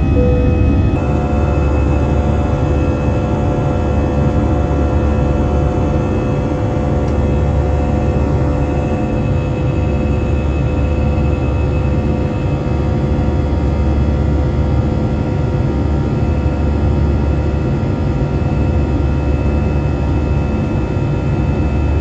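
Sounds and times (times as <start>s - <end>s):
steady whining tones: 0.0s - 13.9s
jet engines rumbling in cabin: 0.0s - 22.0s.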